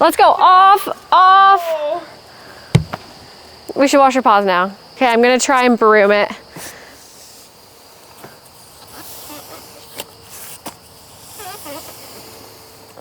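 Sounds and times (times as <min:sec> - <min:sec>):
high insect buzz: 0:02.2 - 0:03.9.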